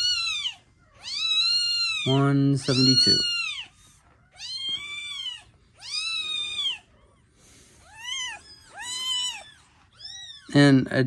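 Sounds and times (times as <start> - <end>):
kitten meowing: 0.0 - 7.0, 7.8 - 10.8.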